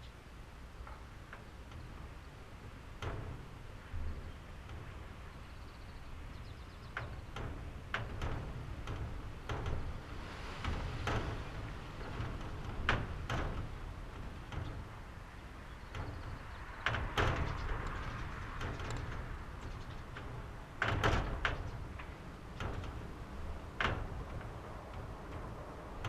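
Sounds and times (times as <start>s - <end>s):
low wind rumble: 0.0s - 26.0s
doors and windows rattling: 0.6s - 26.0s.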